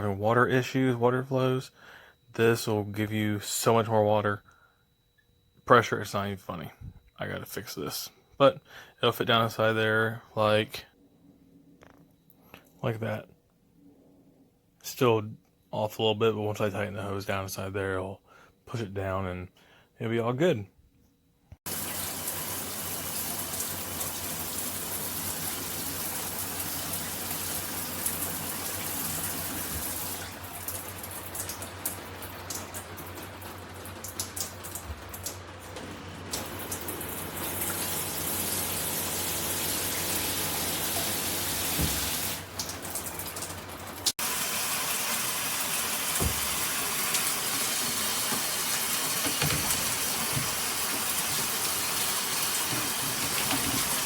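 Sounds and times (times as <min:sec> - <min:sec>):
water rushing from shower head: 0:21.7 - 0:54.0.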